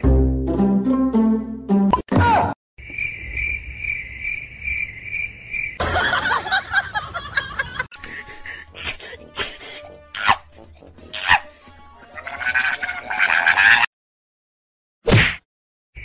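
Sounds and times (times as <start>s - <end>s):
cricket chirping: 2.8s - 5.8s.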